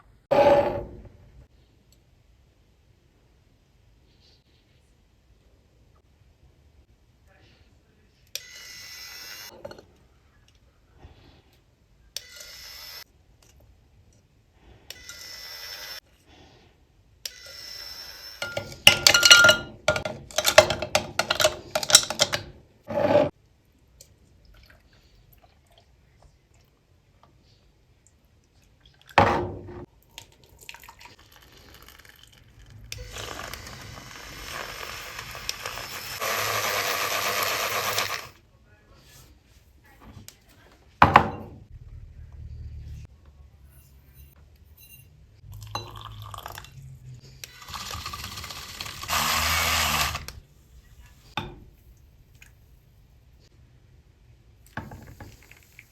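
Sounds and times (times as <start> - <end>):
cups and utensils clinking: 18.4 - 23.3, 44.9 - 46.7
hard clinks and knocks: 18.4 - 23.3.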